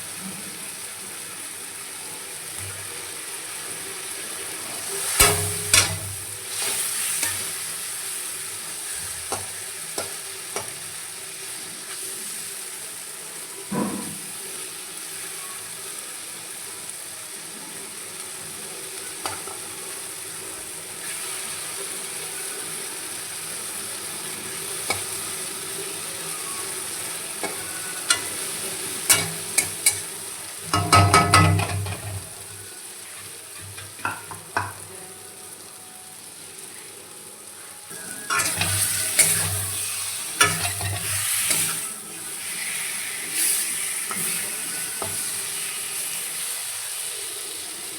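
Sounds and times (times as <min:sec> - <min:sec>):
food sizzling in a pan: 0:00.0 - 0:47.9
utensil scraping a pan: 0:38.3 - 0:41.9.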